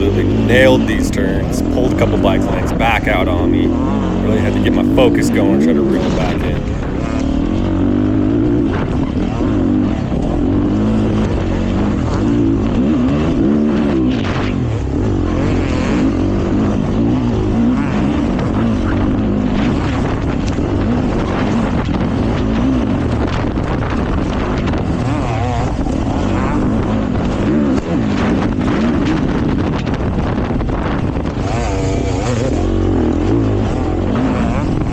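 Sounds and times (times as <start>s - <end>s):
dirt bike engine revving: 0.0s - 8.1s, 31.3s - 34.9s.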